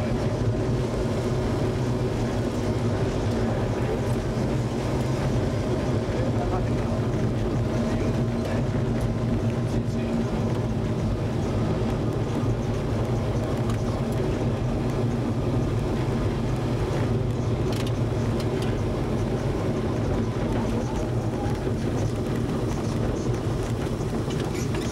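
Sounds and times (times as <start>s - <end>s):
rally car engine running: 0.0s - 24.9s.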